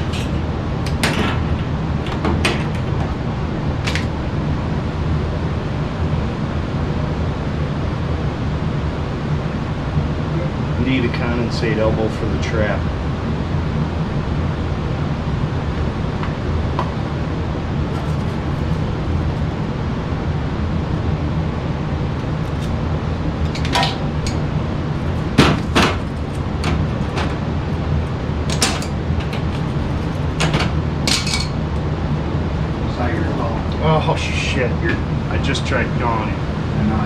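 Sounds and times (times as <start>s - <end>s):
metal knocks and clanks: 0.0s - 4.2s, 17.8s - 19.7s, 23.4s - 31.7s
low mechanical hum: 0.0s - 37.0s.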